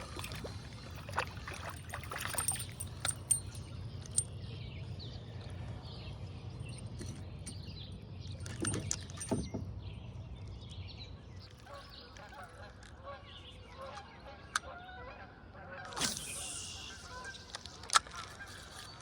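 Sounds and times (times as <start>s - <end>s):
water against kayak hull: 0.0s - 4.3s.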